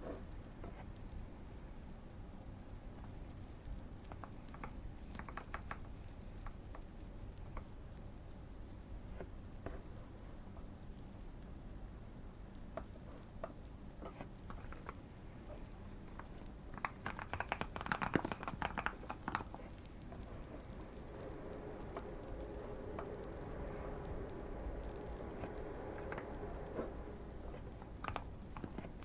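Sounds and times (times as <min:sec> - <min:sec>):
faint steady hum: 0:00.0 - 0:29.0
fireplace crackling: 0:05.9 - 0:29.0
mechanical keyboard typing: 0:16.2 - 0:20.9, 0:27.4 - 0:29.0.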